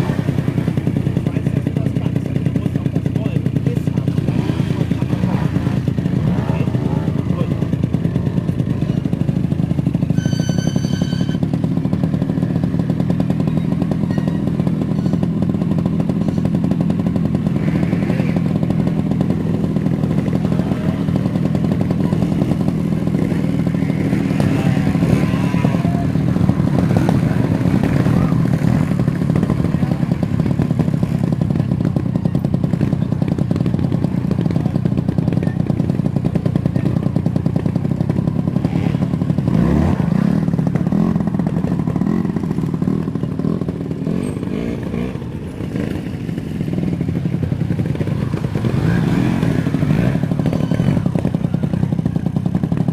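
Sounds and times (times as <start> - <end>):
motorcycle engine running: 0.0 - 52.9
high beep: 10.1 - 11.5.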